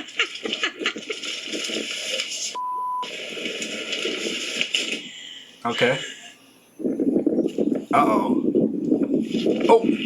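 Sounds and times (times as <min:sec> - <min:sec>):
dense noisy background: 0:00.0 - 0:10.0
censor bleep tone: 0:02.6 - 0:03.1.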